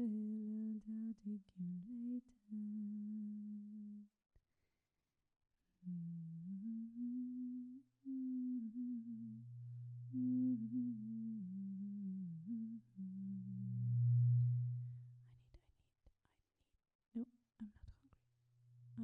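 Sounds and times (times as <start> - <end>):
woman humming a slow tune: 0.0 - 4.1, 5.8 - 15.3
steady low drone: 8.4 - 15.1.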